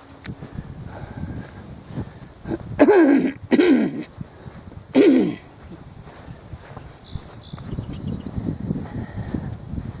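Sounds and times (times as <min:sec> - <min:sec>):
soft footsteps on trail: 0:00.0 - 0:10.0
small songbird singing: 0:06.2 - 0:08.5.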